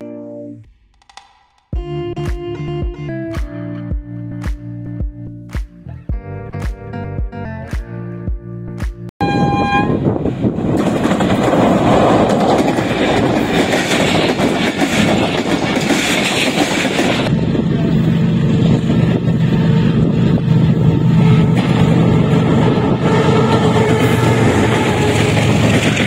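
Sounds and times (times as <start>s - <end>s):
locomotive humming: 9.2s - 26.0s
train coaches rail noise: 9.2s - 26.0s.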